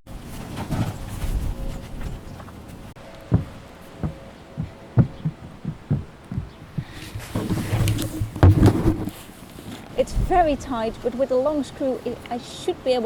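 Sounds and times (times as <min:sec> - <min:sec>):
rustling scraping noise: 0:00.1 - 0:10.3
dull low knocks on roof: 0:03.3 - 0:07.5.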